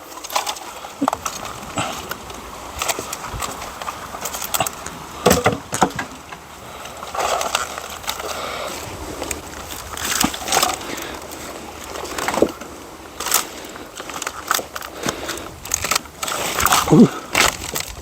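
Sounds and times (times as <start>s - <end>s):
twigs crunching and cracking: 0.0s - 18.0s
pieces of wood knocking together: 0.2s - 6.5s.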